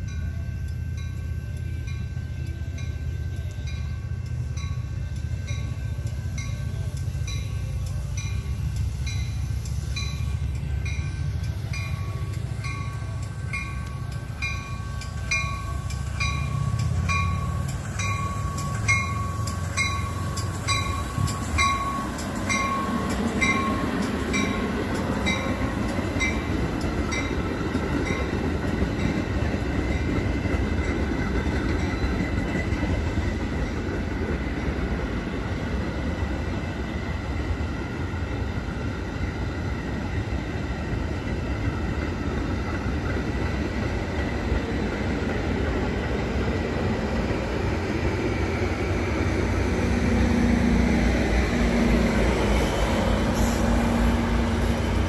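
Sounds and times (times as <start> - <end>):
crossing warning bell ringing: 0.0 - 37.6
diesel locomotive rumble: 0.0 - 55.0
passing train wheels rushing: 0.0 - 55.0.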